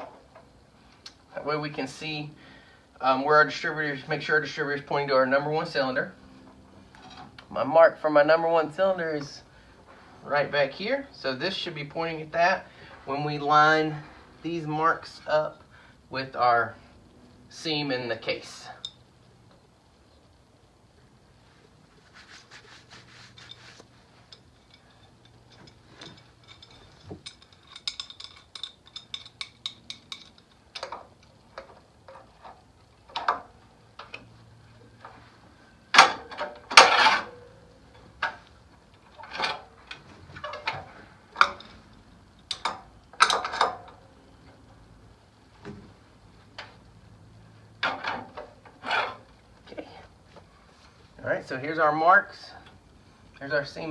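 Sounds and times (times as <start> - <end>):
tools clinking on engine parts: 24.2 - 33.4, 35.9 - 38.4, 39.2 - 44.1.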